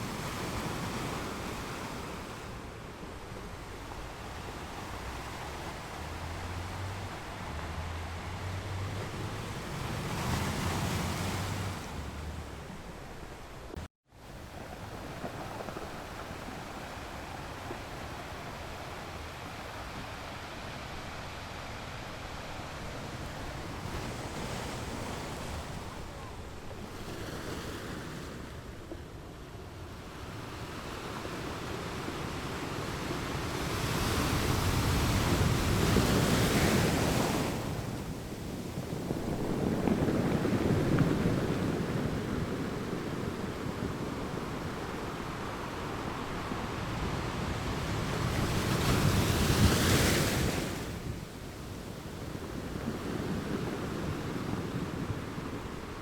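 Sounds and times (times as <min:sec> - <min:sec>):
ocean waves breaking on shore: 0:00.0 - 0:56.0
wind on microphone: 0:29.7 - 0:56.0.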